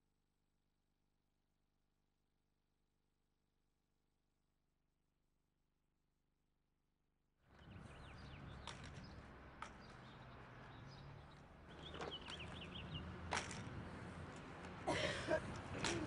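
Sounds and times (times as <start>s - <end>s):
small birds chirping: 7.5s - 14.2s.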